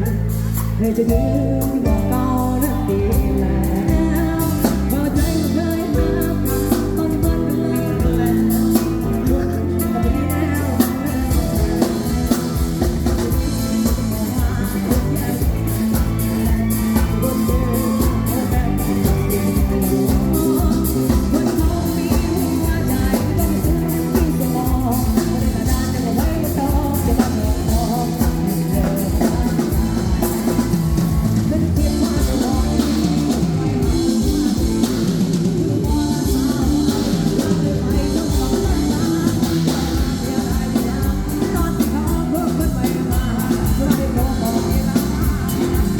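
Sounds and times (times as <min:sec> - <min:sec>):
live rock band playing: 0:00.0 - 0:45.9
person singing: 0:00.0 - 0:45.9.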